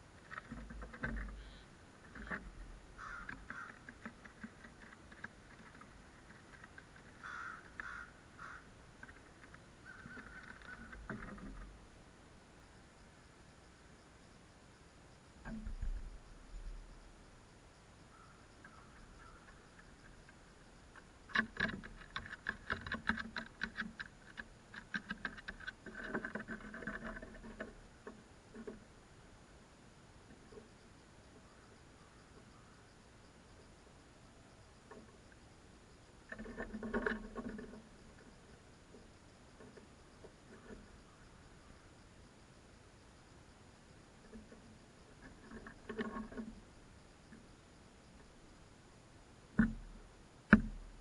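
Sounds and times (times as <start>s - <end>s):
faint ticks: 0.0s - 11.8s, 18.0s - 28.9s, 34.4s - 42.1s, 43.9s - 48.7s, 49.5s - 51.0s
crows pecking beak taps: 0.2s - 11.7s, 18.1s - 28.8s, 49.5s - 49.9s, 50.5s - 50.8s
crows cawing: 3.0s - 3.9s, 7.2s - 8.8s, 9.8s - 11.0s, 18.1s - 19.7s.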